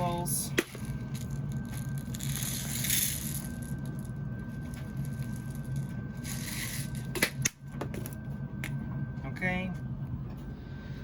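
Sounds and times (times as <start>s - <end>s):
tumble dryer humming: 0.0s - 10.8s
beads rattling from a bottle: 0.7s - 7.1s.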